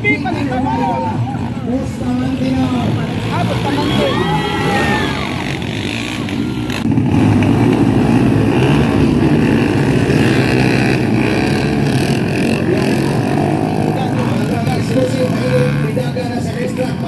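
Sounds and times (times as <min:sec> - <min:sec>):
motocross bike engines: 0:00.0 - 0:17.0.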